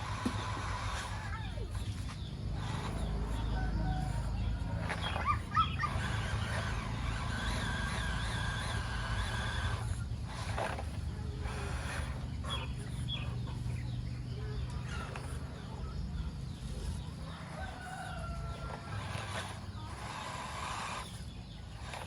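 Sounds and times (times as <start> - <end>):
steady low hum: 0.0 - 22.0
rooster crowing: 3.3 - 5.9, 17.3 - 19.5
chickens clucking: 11.2 - 20.2.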